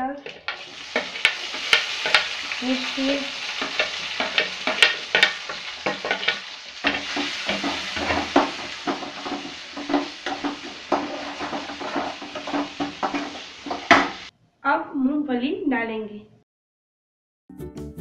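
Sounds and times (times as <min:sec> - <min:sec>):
vegetables sizzling in hot oil: 0:00.0 - 0:14.3
steel spoon scraping a pan: 0:00.2 - 0:14.3.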